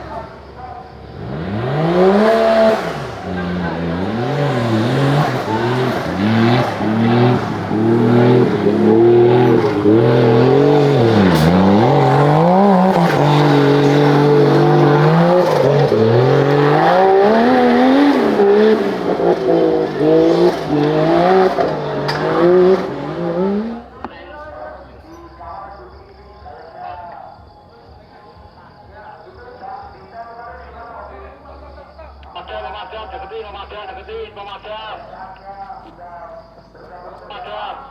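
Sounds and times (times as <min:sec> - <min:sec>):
engine revving hard: 0:01.0 - 0:24.0.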